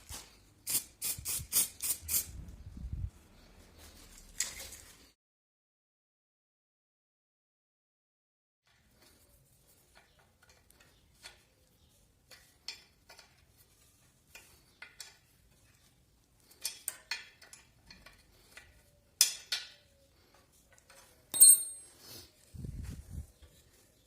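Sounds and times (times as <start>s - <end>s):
metal parts and tools clinking: 12.2s - 22.0s
metallic clink with high ring: 21.3s - 22.0s.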